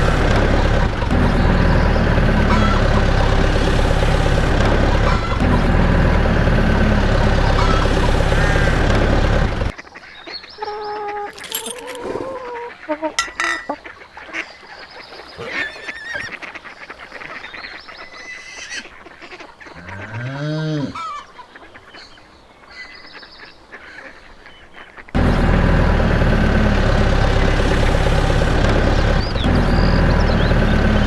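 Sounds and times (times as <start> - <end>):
loud motor drone: 0.0 - 9.7, 25.2 - 31.0
birds honking: 0.0 - 20.3, 22.8 - 31.0.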